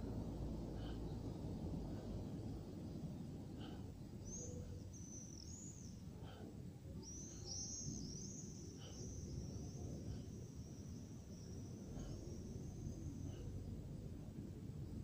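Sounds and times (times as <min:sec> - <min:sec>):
low outdoor rumble: 0:00.0 - 0:15.0
bird chirping: 0:04.2 - 0:06.1, 0:07.0 - 0:13.5.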